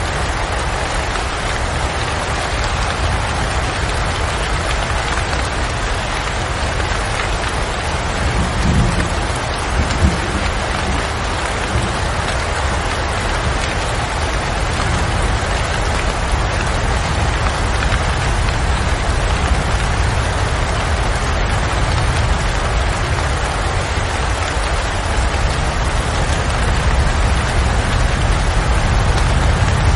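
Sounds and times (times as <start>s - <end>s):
steady rain falling: 0.0s - 29.9s.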